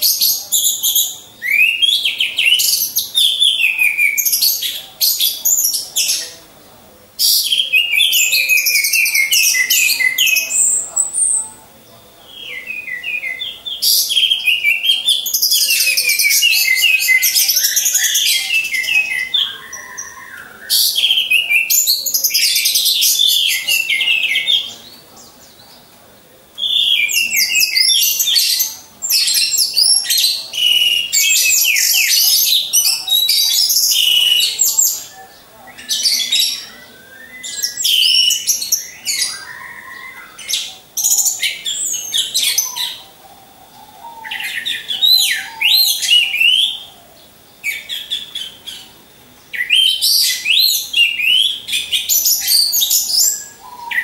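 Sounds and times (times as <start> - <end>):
bird warbling high-pitched: 30.6 - 47.0.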